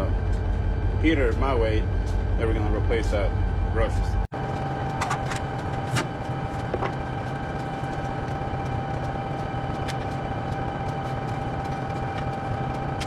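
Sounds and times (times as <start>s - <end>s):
diesel engine drone with whine: 0.0s - 13.0s.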